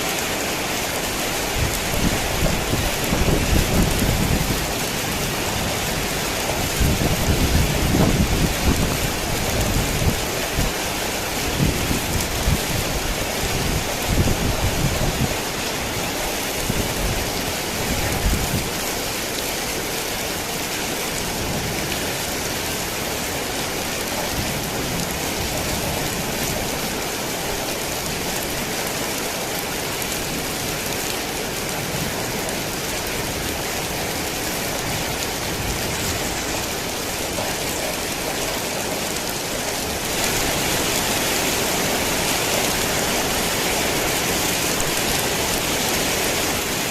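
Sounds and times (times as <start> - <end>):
heavy rain falling: 0.0 - 46.9.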